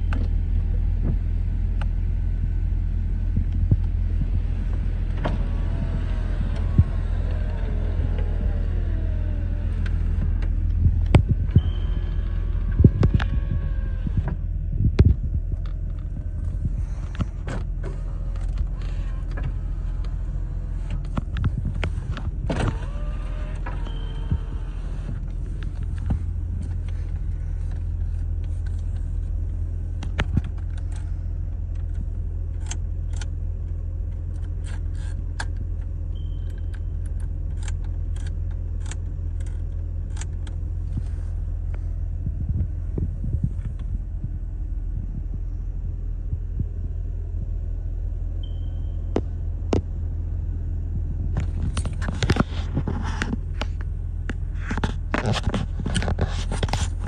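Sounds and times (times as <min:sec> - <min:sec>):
car engine idling: 0:00.0 - 0:57.0
short beeps: 0:11.6 - 0:12.2, 0:36.2 - 0:37.0, 0:48.4 - 0:49.1.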